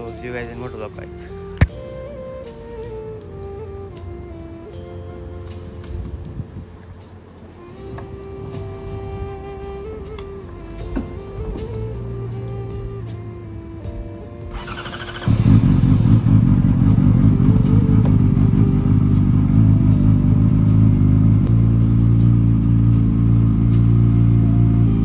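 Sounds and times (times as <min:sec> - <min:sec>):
engine starter cranking: 0:14.5 - 0:17.1
motorcycle engine idling: 0:14.5 - 0:25.0.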